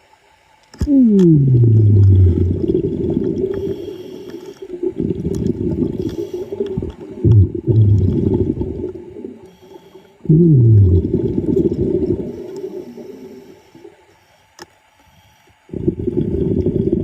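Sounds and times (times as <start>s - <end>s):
underwater air bubbles gurgling: 0.8s - 14.1s, 15.6s - 17.0s
short falling low tone: 0.9s - 2.8s, 10.3s - 11.1s.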